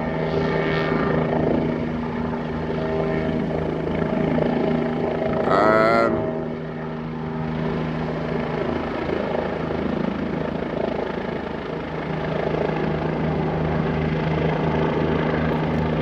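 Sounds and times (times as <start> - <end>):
helicopter rotor chop and turbine hum: 0.0 - 16.0.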